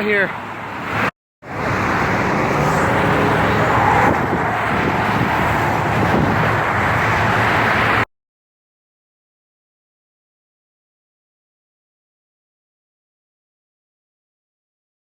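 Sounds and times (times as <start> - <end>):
freeway traffic rushing past: 0.0 - 8.1.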